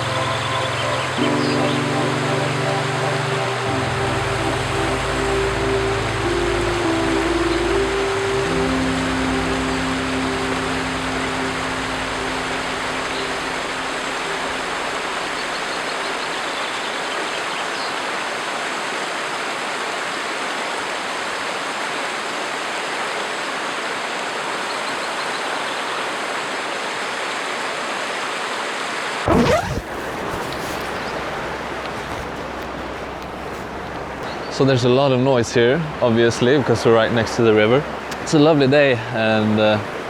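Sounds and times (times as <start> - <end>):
low hum: 0.0 - 16.5
river water rushing: 0.0 - 34.2.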